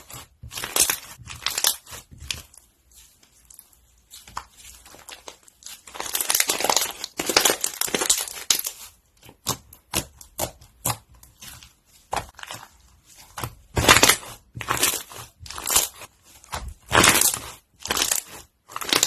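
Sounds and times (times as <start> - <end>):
crunchy slime crackling: 0.0 - 19.0.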